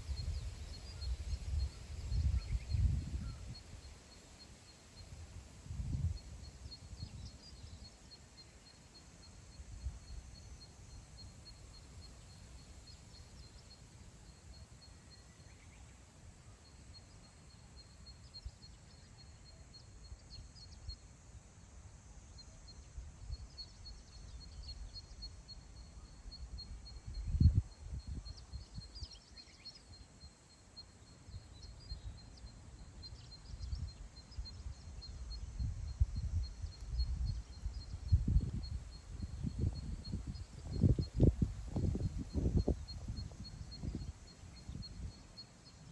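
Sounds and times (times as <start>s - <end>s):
wind gusting on microphone: 0.0s - 3.6s, 35.4s - 45.2s
small birds chirping: 28.0s - 45.9s.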